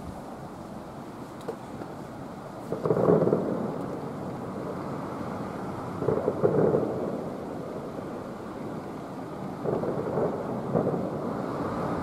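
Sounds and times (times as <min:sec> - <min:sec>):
distant fireworks booming: 0:02.6 - 0:12.0.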